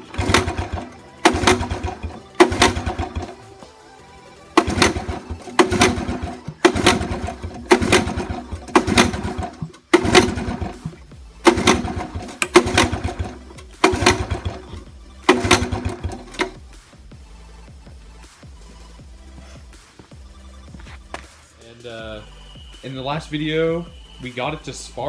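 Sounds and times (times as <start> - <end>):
engine pull-start cranking: 0.0 - 3.8, 4.4 - 16.7.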